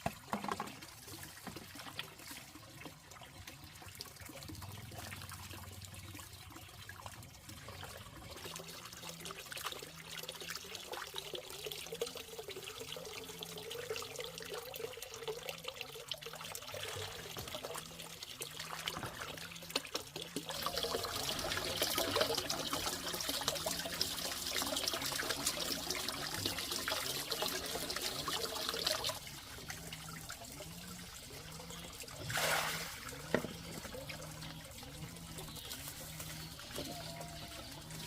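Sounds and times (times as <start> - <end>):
water pouring and splashing: 0.0 - 38.0
water trickling: 0.0 - 38.0.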